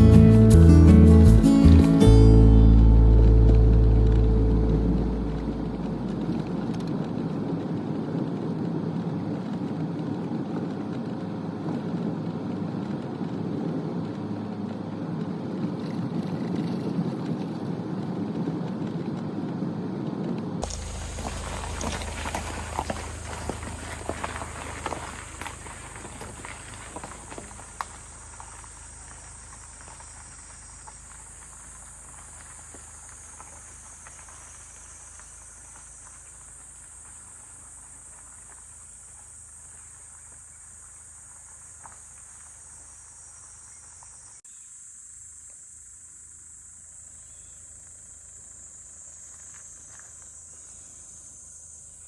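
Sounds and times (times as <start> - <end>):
low background rumble: 0.0 - 7.6, 20.6 - 32.2
insects singing: 20.6 - 37.8.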